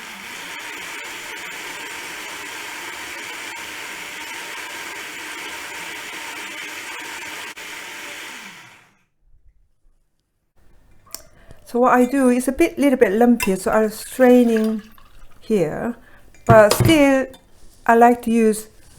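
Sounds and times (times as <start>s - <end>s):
electric blender running: 0.0s - 9.0s.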